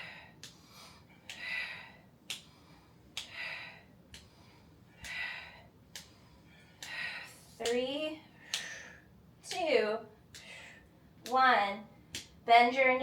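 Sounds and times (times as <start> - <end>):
woman breathing hard: 0.0 - 7.6, 8.3 - 9.2, 10.4 - 11.0.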